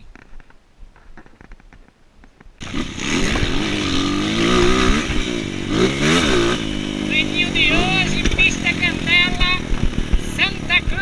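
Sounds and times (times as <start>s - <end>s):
motorcycle engine revving: 2.6s - 11.0s.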